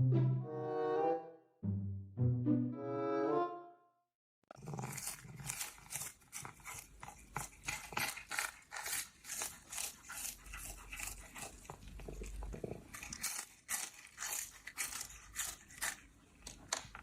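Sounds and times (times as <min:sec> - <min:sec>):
pet chewing crunchy food: 0:04.5 - 0:17.0.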